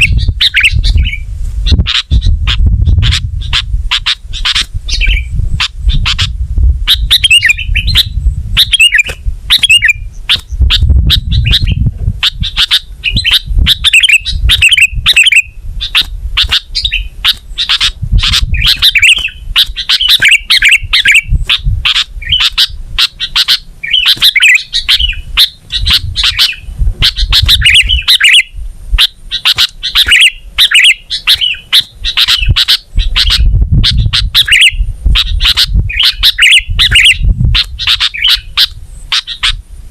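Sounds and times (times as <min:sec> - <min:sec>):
bulbul singing: 0:00.0 - 0:39.6
low rumble with thuds: 0:10.1 - 0:13.7, 0:25.7 - 0:28.0.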